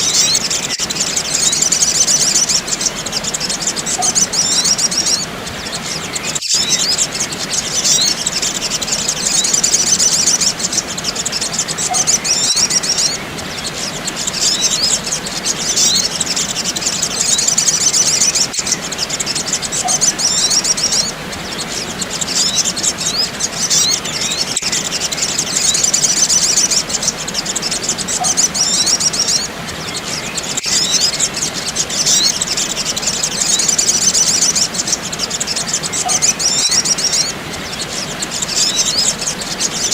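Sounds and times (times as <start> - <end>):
birds twittering: 0.0 - 39.9.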